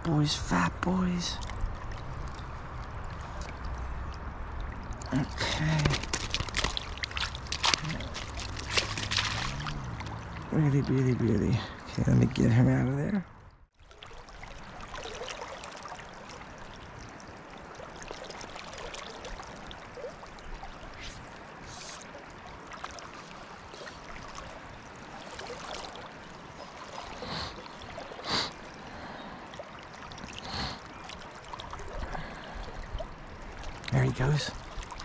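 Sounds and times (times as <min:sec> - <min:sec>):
water splashes: 0:00.7 - 0:35.0
river running over rocks: 0:04.2 - 0:10.9.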